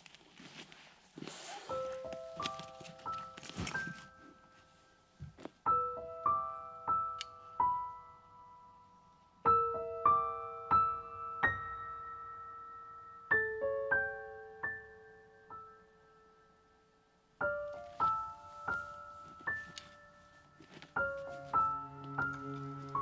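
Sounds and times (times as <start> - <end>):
gentle solo piano: 9.4 - 16.0.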